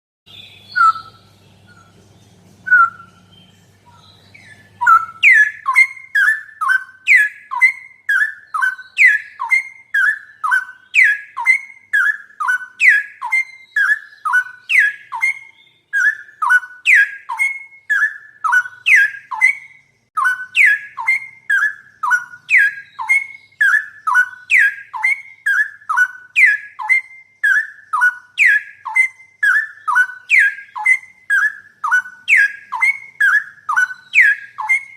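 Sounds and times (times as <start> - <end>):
faint low hum: 0.3 - 6.9
bird song whistled notes: 0.3 - 34.9.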